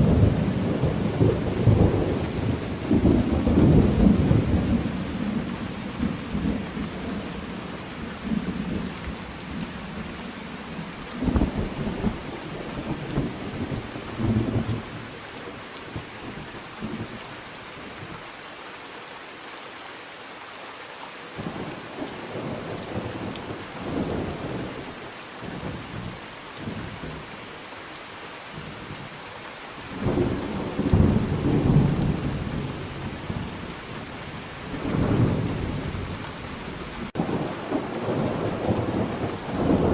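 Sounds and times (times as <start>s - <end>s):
steady rain: 0.0s - 39.9s
rolling thunder: 34.7s - 39.9s.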